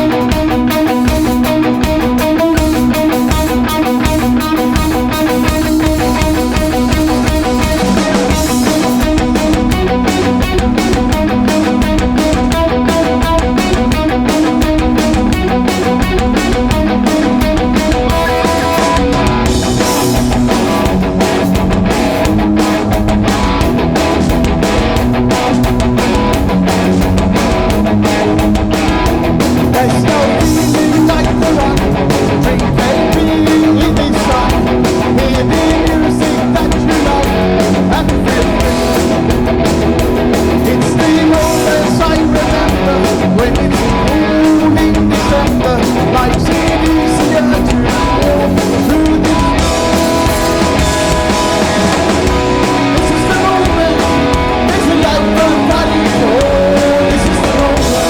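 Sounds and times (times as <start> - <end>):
punk band playing loud: 0.0 - 58.0.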